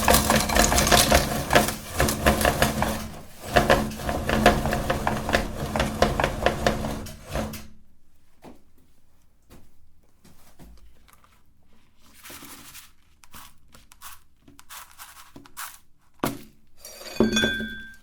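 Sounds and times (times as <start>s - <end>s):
hard candy cracking: 0.0s - 2.8s
meat grinder motor humming: 0.0s - 7.5s.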